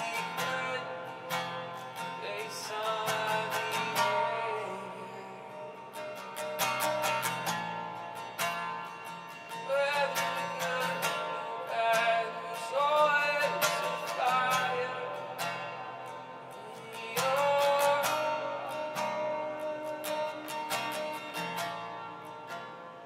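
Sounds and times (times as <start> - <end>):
person singing wordless melody: 0.0 - 1.4, 2.0 - 6.4, 9.6 - 21.4
acoustic guitar strumming: 0.0 - 23.0.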